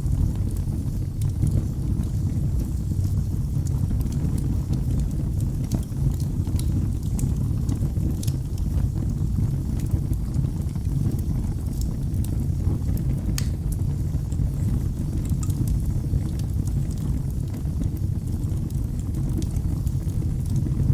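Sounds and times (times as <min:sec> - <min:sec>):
fire popping and snapping: 0:00.0 - 0:20.9
flames rumbling: 0:00.0 - 0:20.9.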